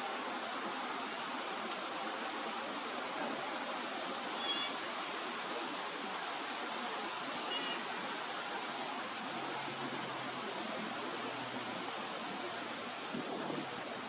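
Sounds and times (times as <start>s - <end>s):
running water rushing: 0.0s - 14.0s
high-pitched bird calls: 4.4s - 4.8s.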